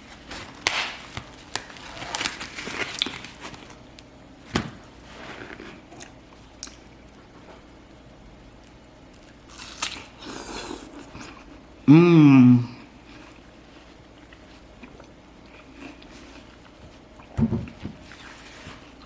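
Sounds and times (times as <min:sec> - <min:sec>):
person chewing crunchy food: 0:00.0 - 0:03.8, 0:05.2 - 0:07.0, 0:09.2 - 0:11.6, 0:13.0 - 0:17.4.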